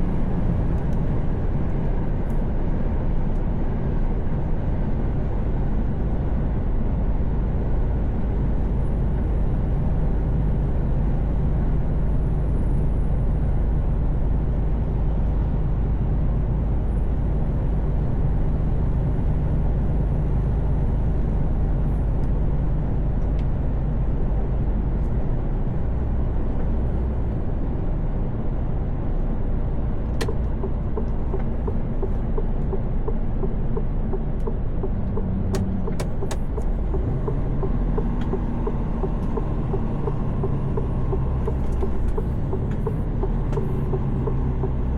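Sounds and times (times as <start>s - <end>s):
truck diesel engine rumble: 0.0s - 44.9s
tyre and road noise: 20.2s - 44.9s.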